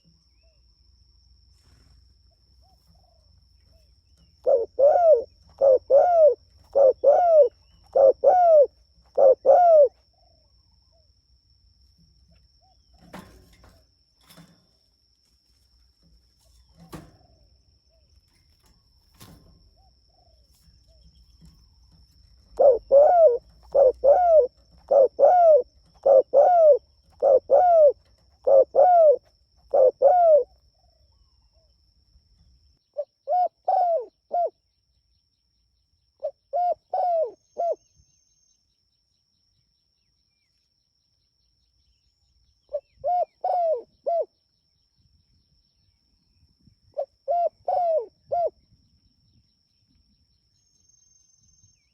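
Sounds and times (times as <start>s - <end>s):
dove cooing: 4.2s - 11.0s, 19.3s - 31.0s, 33.0s - 34.6s, 36.2s - 37.8s, 42.7s - 44.3s, 47.0s - 48.6s.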